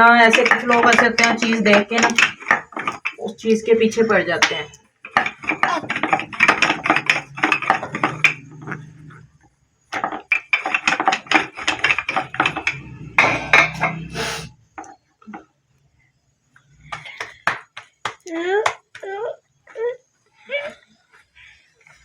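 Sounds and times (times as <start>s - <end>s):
dishes and utensils clattering: 0.0s - 9.3s, 9.9s - 14.5s.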